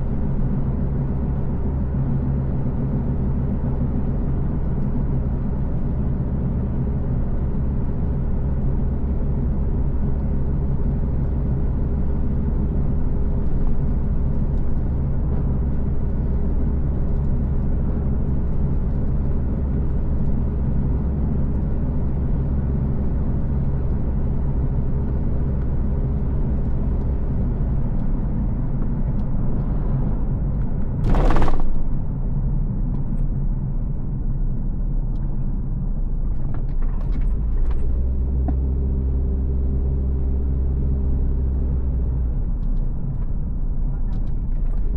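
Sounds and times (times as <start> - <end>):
car engine hum: 0.0 - 44.9
road rumble: 0.0 - 44.9.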